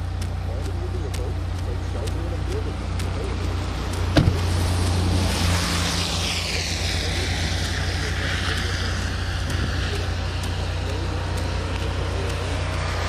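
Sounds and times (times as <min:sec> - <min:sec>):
car engine humming: 0:00.0 - 0:13.0
sharp knock: 0:04.2 - 0:04.5.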